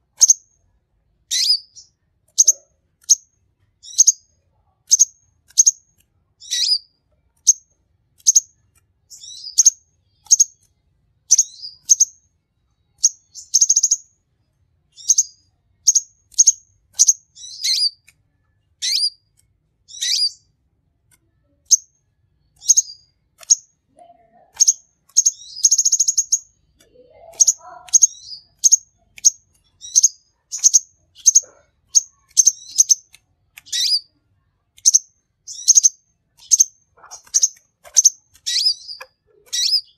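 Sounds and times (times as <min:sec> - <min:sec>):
bird chirping: 0:00.0 - 0:00.6, 0:01.3 - 0:14.2, 0:14.9 - 0:20.6, 0:21.3 - 0:39.9
buzzy bird trills: 0:01.3 - 0:04.2, 0:06.4 - 0:06.8, 0:15.0 - 0:18.0, 0:18.8 - 0:19.2, 0:19.9 - 0:20.5, 0:22.6 - 0:34.2, 0:34.8 - 0:39.9.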